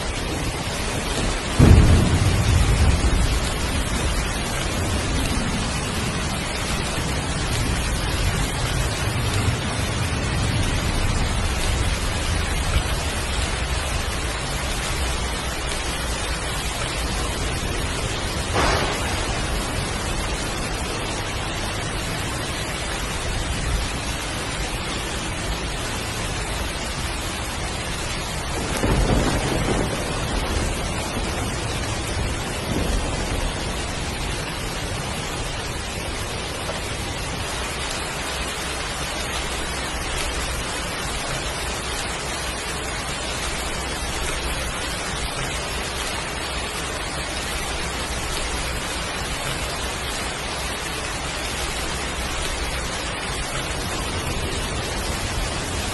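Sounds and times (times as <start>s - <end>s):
heavy rain falling: 0.0s - 55.9s
thunder rumbling: 0.0s - 55.9s.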